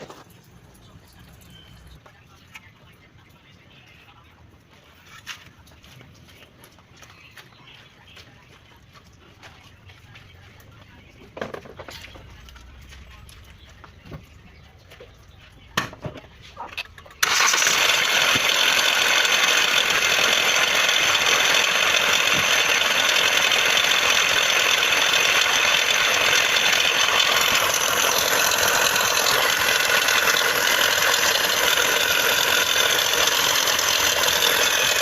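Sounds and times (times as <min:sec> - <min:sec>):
car engine idling with rattle: 0:00.0 - 0:02.0, 0:11.4 - 0:35.0.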